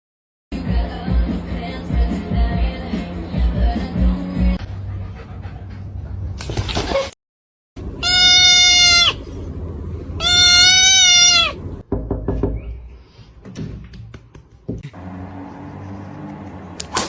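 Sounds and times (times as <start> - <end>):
animal calling: 8.0 - 9.4, 10.2 - 11.6.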